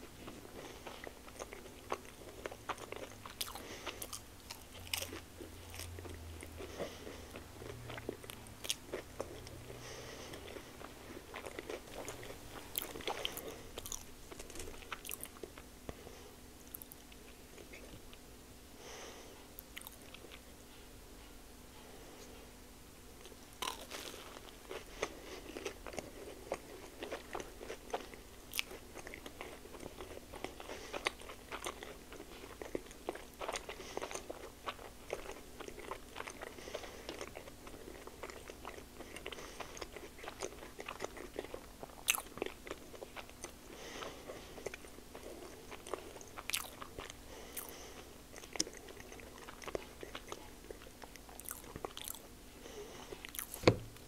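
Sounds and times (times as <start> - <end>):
person chewing food: 0.0 - 22.6, 23.2 - 54.0.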